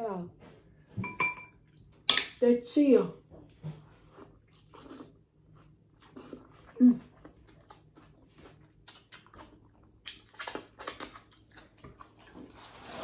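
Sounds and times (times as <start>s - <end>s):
person chewing: 4.0s - 13.0s.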